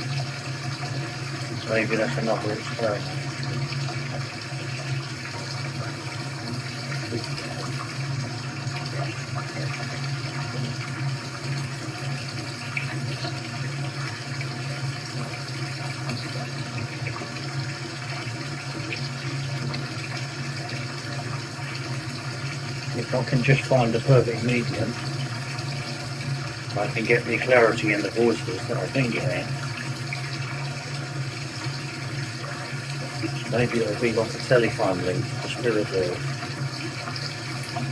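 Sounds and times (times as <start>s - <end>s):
water rushing through speakers: 0.0s - 37.9s.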